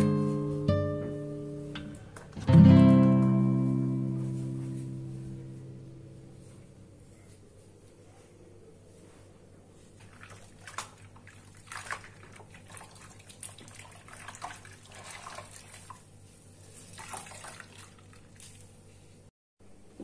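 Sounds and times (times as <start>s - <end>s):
steady low hum: 3.4s - 20.0s
water running into sink: 10.0s - 16.1s, 16.8s - 18.6s.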